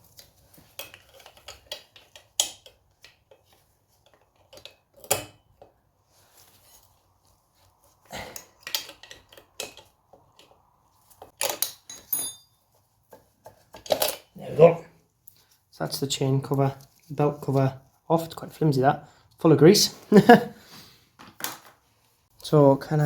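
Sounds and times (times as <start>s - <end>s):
light metallic clicks and rattles: 0.0s - 5.8s, 8.3s - 14.3s.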